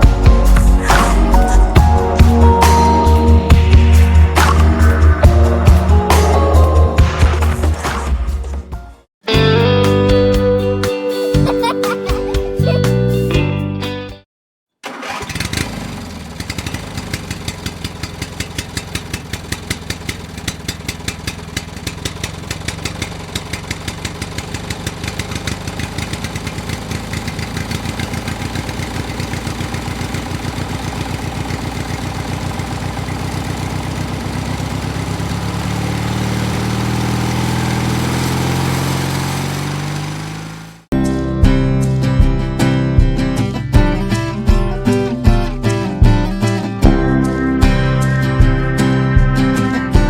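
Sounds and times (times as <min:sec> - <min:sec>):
small tractor engine chugging: 0:14.8 - 0:40.8.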